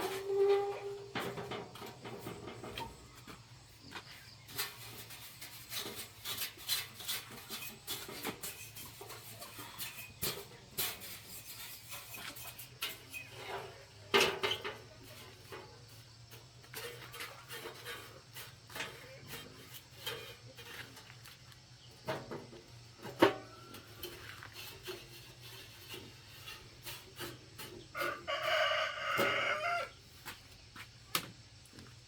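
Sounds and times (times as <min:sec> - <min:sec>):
scraping and rubbing on hard surface: 0:00.0 - 0:03.4, 0:04.0 - 0:29.2.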